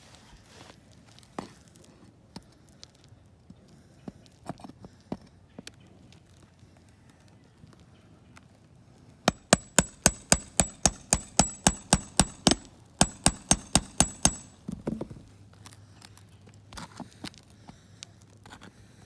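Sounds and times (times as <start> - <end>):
scraping rustle: 0.0 - 1.9
nails being hammered: 9.3 - 15.0.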